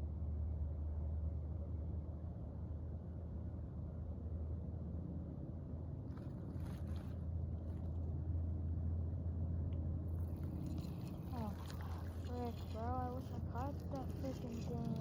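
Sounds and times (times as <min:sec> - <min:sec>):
faint rustles or clicks: 0:06.1 - 0:08.0.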